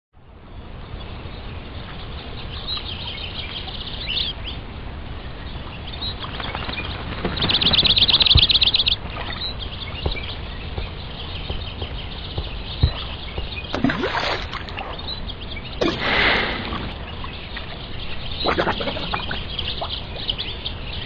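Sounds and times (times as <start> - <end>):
birds chirping: 5.2 - 21.0
loud rapid bird trill: 6.0 - 21.0.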